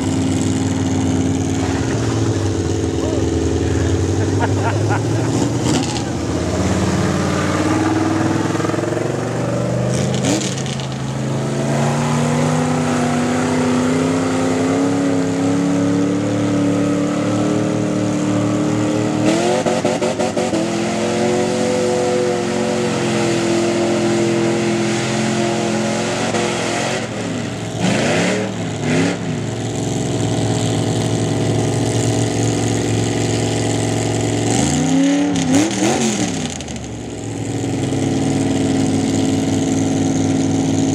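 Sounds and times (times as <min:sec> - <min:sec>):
truck engine revving: 0:00.0 - 0:40.9.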